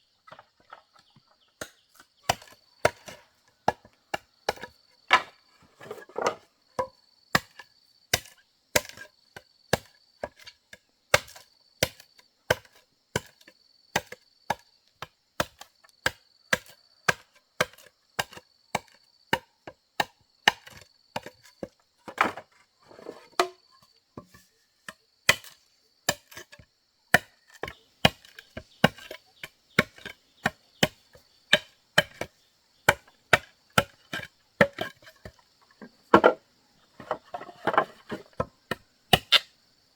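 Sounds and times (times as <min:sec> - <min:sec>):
chopping strikes on wood: 0:01.6 - 0:05.4, 0:14.0 - 0:21.3, 0:23.4 - 0:23.6, 0:25.3 - 0:26.4, 0:27.1 - 0:29.2, 0:29.8 - 0:32.3, 0:37.0 - 0:39.5.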